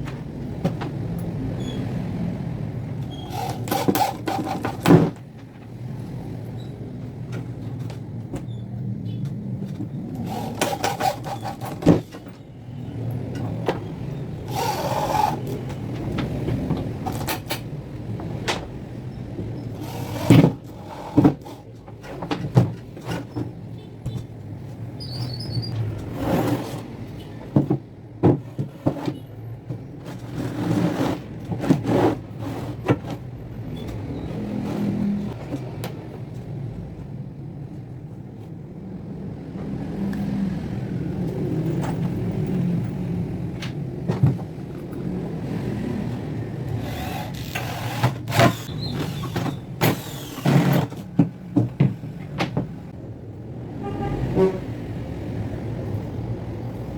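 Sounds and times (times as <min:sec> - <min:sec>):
knocks and clatter of parts: 0:00.0 - 0:01.4, 0:03.0 - 0:05.8, 0:07.2 - 0:12.6, 0:13.3 - 0:24.8, 0:25.7 - 0:36.6, 0:41.6 - 0:45.1, 0:46.7 - 0:53.0.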